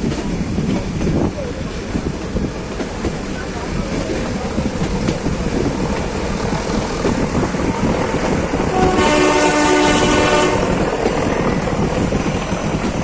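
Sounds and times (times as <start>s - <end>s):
train rumbling: 0.0s - 13.0s
train horn blast: 8.7s - 10.9s.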